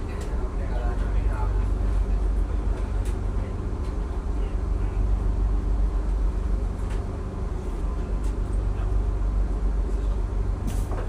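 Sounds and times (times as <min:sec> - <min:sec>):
train rumbling inside carriage: 0:00.0 - 0:11.0.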